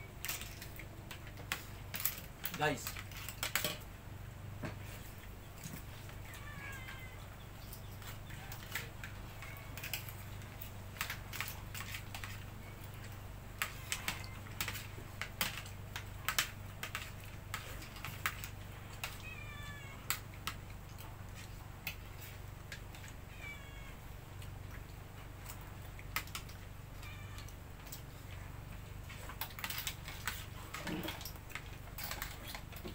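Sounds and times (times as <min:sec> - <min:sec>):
clam shells clattering on plates: 0:00.2 - 0:03.9, 0:09.6 - 0:19.2
cat meowing: 0:06.2 - 0:07.4, 0:19.1 - 0:20.1, 0:23.3 - 0:24.1, 0:26.9 - 0:27.6.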